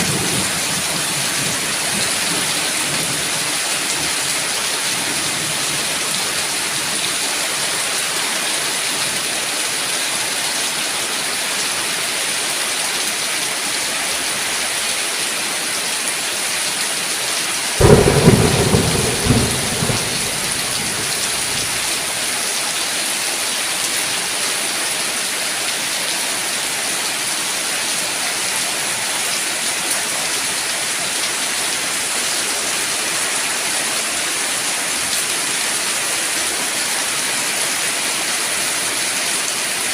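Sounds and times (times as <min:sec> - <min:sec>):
heavy rain: 0:00.0 - 0:39.9
thunderclap: 0:17.8 - 0:22.0.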